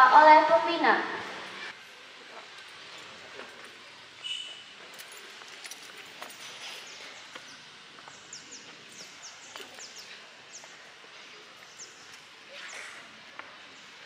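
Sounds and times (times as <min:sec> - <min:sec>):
steady outdoor hiss: 0:00.0 - 0:14.0
small birds chirping: 0:04.2 - 0:04.7, 0:06.6 - 0:14.0.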